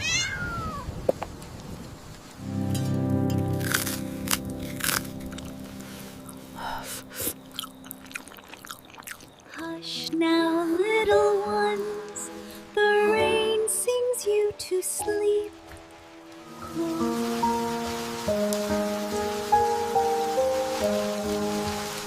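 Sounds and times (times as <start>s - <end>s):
gentle lullaby melody: 2.4s - 8.1s, 9.5s - 22.0s
soft background music: 2.4s - 22.0s
crisp crunches: 3.5s - 9.5s.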